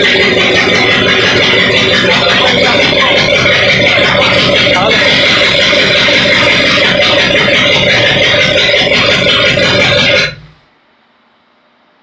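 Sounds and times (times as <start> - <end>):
loud engine running: 0.0 - 10.7.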